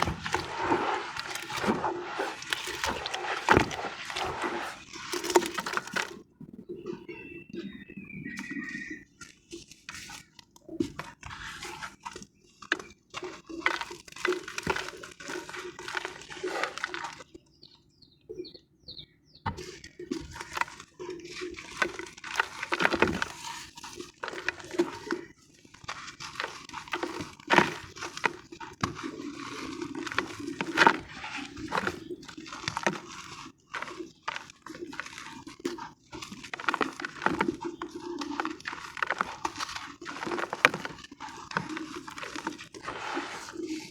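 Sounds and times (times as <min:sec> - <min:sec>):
wet sand crushed by hand: 0:00.0 - 0:06.0, 0:26.3 - 0:43.9.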